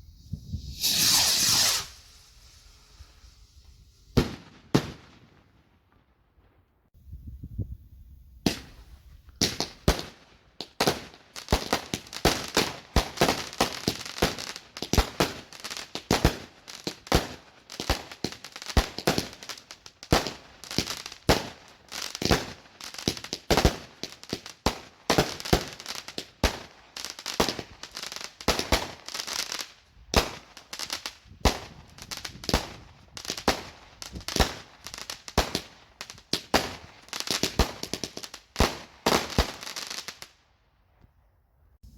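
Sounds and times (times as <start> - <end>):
fireworks crackling: 0.0 - 5.4, 8.5 - 40.3
fireworks banging: 0.2 - 2.6.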